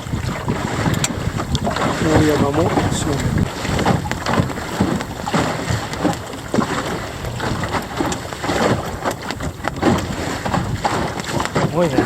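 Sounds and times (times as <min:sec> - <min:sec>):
water slapping against boat hull: 0:00.0 - 0:12.0
wind buffeting microphone: 0:00.0 - 0:12.0.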